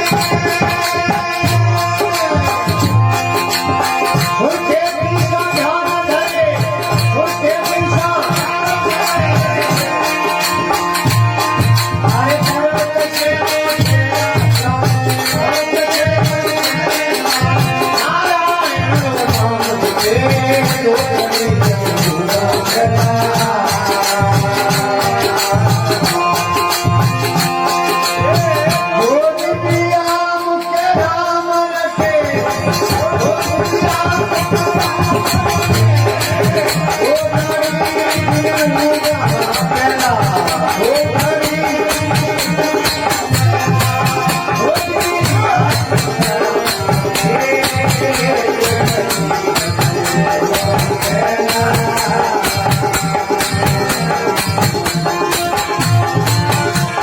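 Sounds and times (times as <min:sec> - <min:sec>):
folk devotional instrumental music: 0:00.0 - 0:57.0
shaker percussion with drums: 0:06.3 - 0:31.1, 0:32.0 - 0:57.0.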